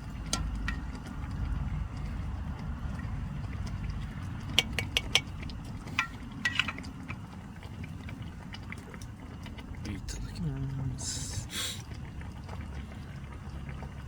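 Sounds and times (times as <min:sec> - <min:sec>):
steady low rumble: 0:00.0 - 0:07.1
metal cookware clinking: 0:04.6 - 0:06.9.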